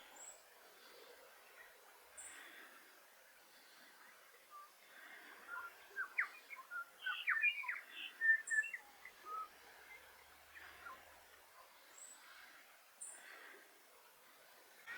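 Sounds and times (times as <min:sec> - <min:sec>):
bird singing: 0:04.5 - 0:11.1.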